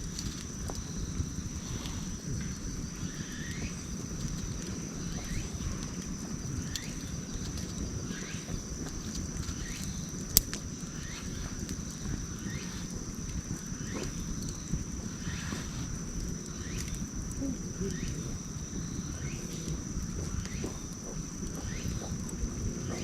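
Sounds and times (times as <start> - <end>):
campfire crackling: 0.0 - 23.0
steady high whine: 0.0 - 23.0
wood fire sharp pop: 8.9 - 10.8.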